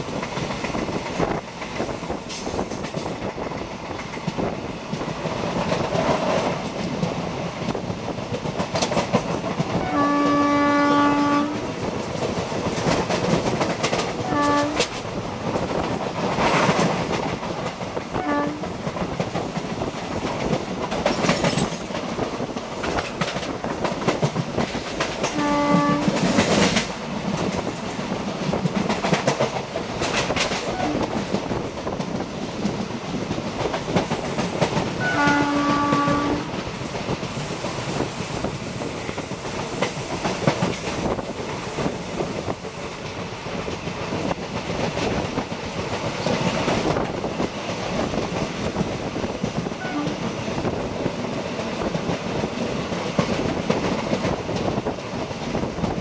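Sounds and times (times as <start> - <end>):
train wheels clickety-clack: 0.0 - 56.0
train horn blasts: 9.7 - 11.7, 14.2 - 15.0, 18.2 - 18.8, 25.2 - 26.4, 30.7 - 31.1, 34.9 - 36.6, 49.8 - 50.3.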